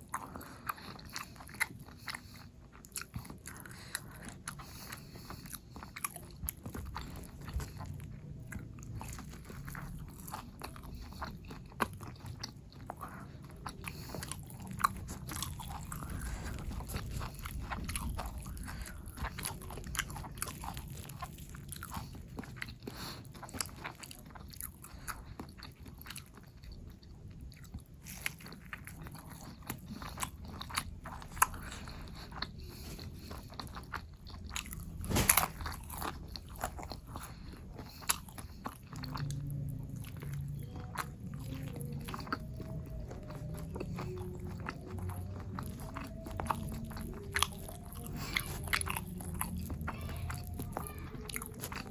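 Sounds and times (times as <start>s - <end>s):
person chewing crunchy food: 0.0s - 51.9s.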